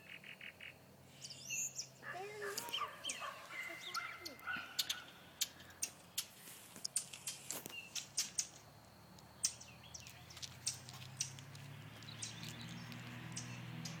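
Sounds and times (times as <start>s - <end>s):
bird chirps: 0.0s - 14.0s.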